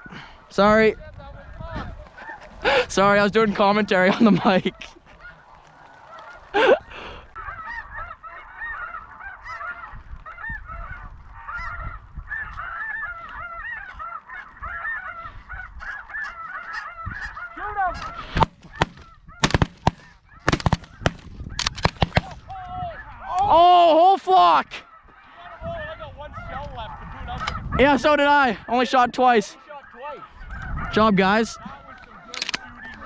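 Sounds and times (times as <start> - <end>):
geese honking: 2.1 - 22.4, 28.2 - 33.0
shotgun shots: 18.4 - 22.4.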